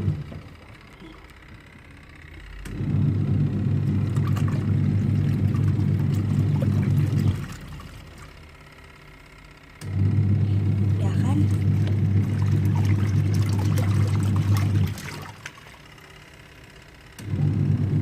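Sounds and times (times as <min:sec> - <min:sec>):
washing machine motor humming: 0:00.0 - 0:18.0
laundry churning in water: 0:02.8 - 0:08.5, 0:10.0 - 0:16.1.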